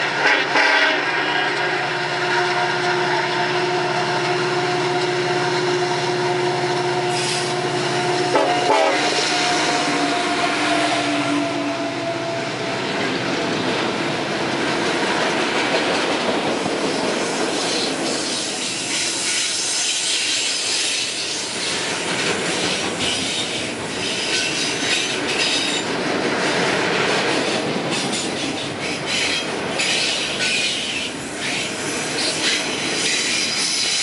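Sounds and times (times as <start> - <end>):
locomotive horn blast: 0.0 - 12.8.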